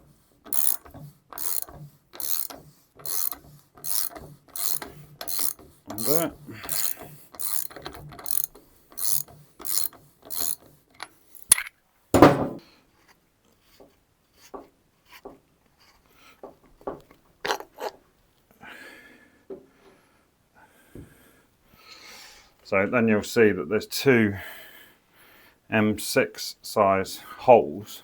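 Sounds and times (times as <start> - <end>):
socket ratchet clicking: 0.5 - 11.7
loud tool knock: 12.2 - 12.6.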